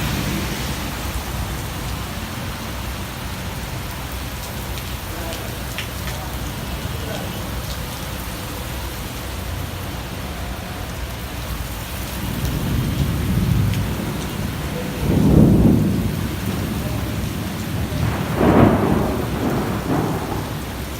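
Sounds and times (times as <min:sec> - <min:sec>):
thunder rumbling: 0:00.0 - 0:03.9, 0:11.6 - 0:20.9
rain falling: 0:00.0 - 0:20.9.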